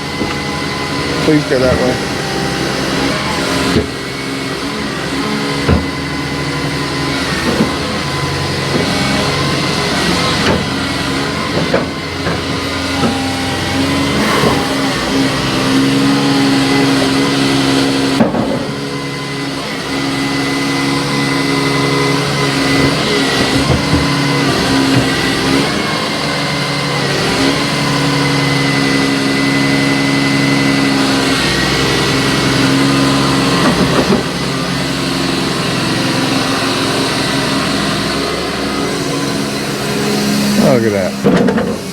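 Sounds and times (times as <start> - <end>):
construction machine engine running: 0.0 - 41.9.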